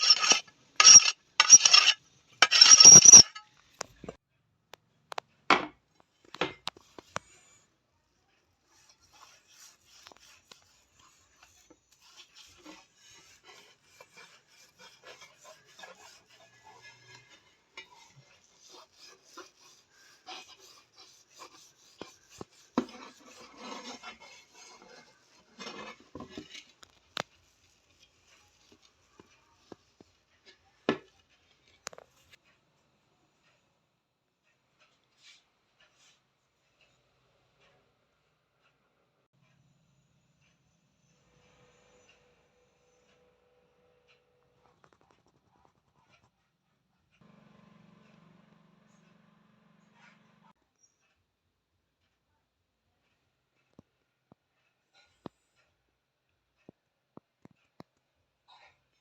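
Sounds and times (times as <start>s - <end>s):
metal scraping on iron griddle: 0.0s - 3.5s, 8.3s - 32.4s.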